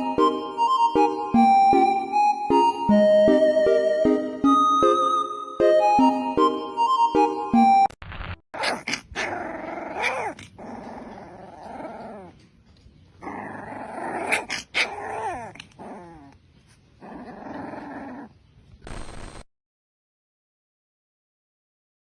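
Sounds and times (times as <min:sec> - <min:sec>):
dog growling: 0:08.6 - 0:12.4, 0:13.2 - 0:16.4, 0:17.0 - 0:18.4.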